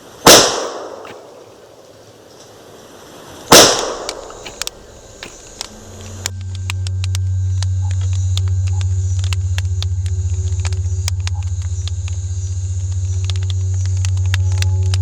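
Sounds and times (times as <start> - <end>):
faint high steady tones: 0.0 - 15.0
pulsing low droning hum: 0.0 - 15.0
sharp clicks and crackles: 3.5 - 15.0.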